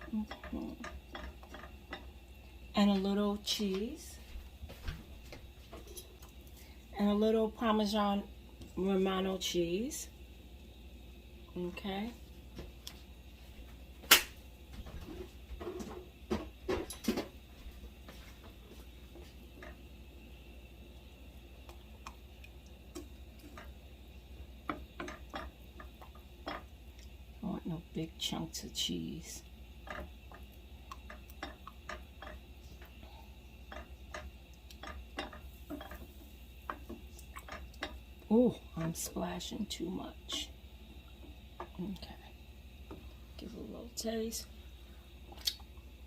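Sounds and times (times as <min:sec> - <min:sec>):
utensil stirring sauce in pan: 0:00.0 - 0:02.3, 0:18.1 - 0:27.4, 0:29.4 - 0:43.1.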